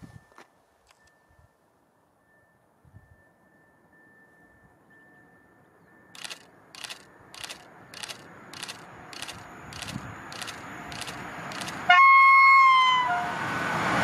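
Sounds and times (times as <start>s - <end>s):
train approaching: 0.0s - 14.0s
sharp regular clacking: 6.2s - 11.9s.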